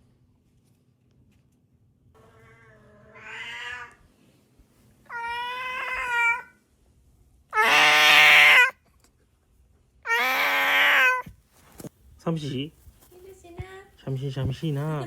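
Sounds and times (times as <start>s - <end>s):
cat meowing: 2.2s - 4.0s, 5.1s - 6.6s, 7.5s - 8.8s, 10.0s - 11.3s.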